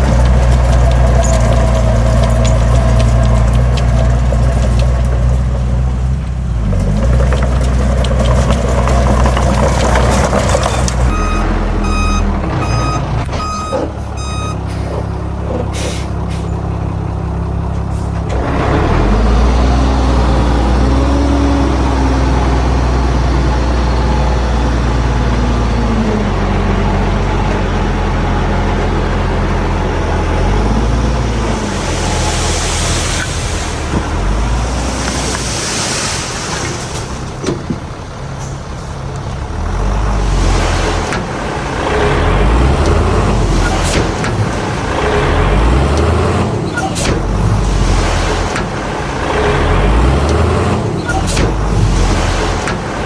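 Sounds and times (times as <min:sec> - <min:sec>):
heavy diesel machinery running: 0:00.0 - 0:53.0
reversing alarm beeping: 0:10.8 - 0:14.9.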